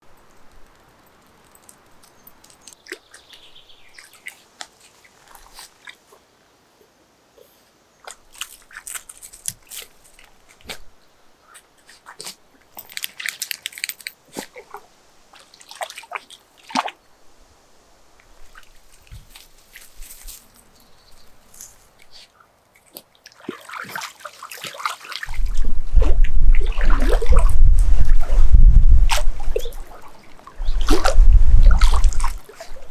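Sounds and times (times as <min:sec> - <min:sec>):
water splashing: 0:14.3 - 0:17.0, 0:22.8 - 0:32.9
dog snapping at water: 0:22.9 - 0:28.4, 0:29.0 - 0:32.9.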